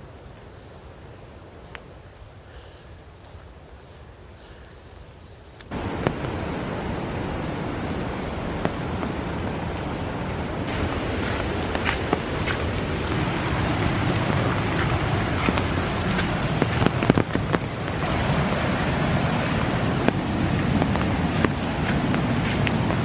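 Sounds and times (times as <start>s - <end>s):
rain and running water: 0.0s - 23.0s
footsteps on wet gravel: 10.7s - 23.0s.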